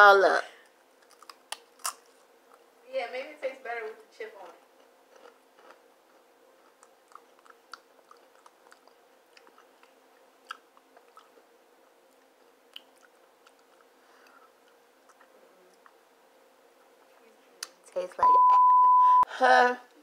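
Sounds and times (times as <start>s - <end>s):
faint steady hum: 0.0s - 20.0s
potato chip being chewed: 1.0s - 2.7s, 4.4s - 16.0s.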